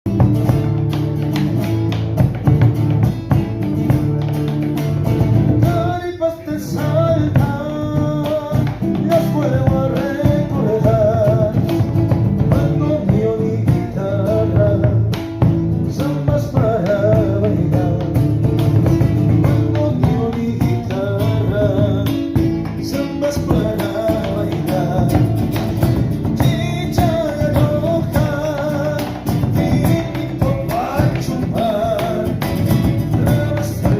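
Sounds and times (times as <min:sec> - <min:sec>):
strummed guitars: 0:00.1 - 0:33.9.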